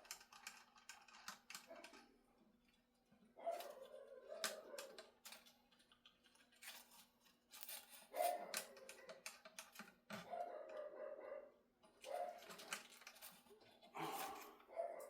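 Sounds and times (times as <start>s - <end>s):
light clicks and taps: 3.5s - 10.9s.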